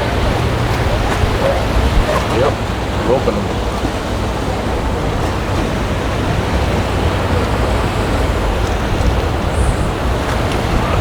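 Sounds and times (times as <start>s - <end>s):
wind and rough water rushing: 0.0s - 11.0s
wind buffeting the microphone: 0.0s - 11.0s.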